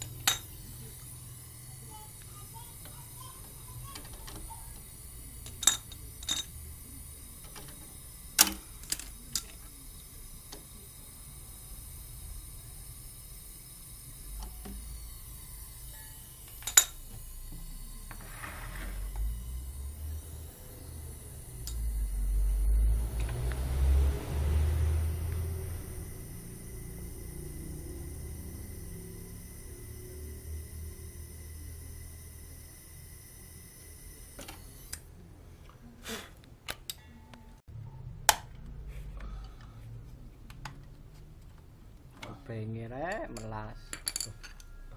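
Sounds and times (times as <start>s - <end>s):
tools clicking and knocking: 5.4s - 6.6s, 43.0s - 44.7s.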